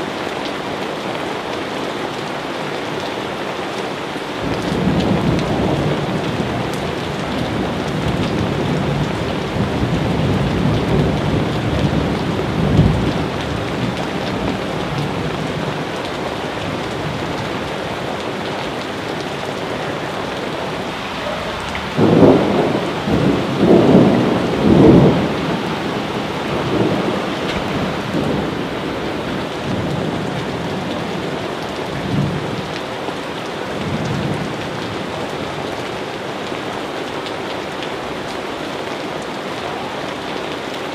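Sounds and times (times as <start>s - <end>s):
heavy rain: 0.0s - 40.9s
thunder rumbling: 4.4s - 32.8s.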